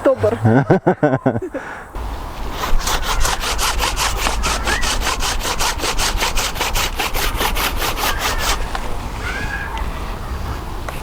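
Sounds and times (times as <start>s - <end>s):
hand saw cutting branch: 2.0s - 8.9s.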